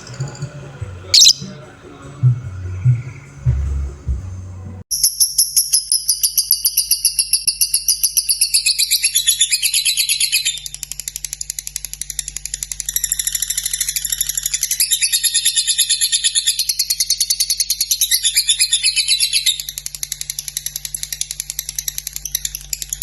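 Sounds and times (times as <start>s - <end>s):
bird chattering trill: 1.2s - 1.6s.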